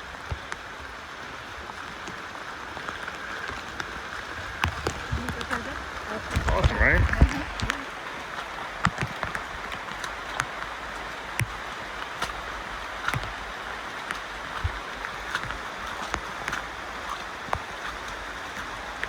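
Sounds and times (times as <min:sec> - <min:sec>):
flowing water rushing: 0:00.0 - 0:19.0.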